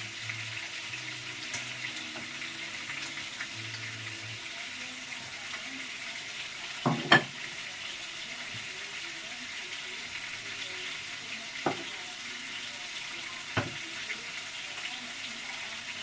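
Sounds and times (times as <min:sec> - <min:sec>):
food sizzling in hot oil: 0:00.0 - 0:16.0
utensil knocking on pan: 0:06.8 - 0:07.3, 0:11.6 - 0:11.9, 0:13.6 - 0:13.8.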